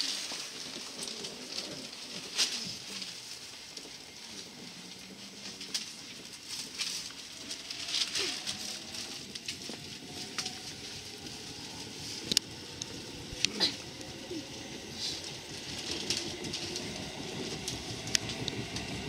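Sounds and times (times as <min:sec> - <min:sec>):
train running hiss: 0:00.0 - 0:19.0
electric motor whine rising: 0:07.1 - 0:19.0.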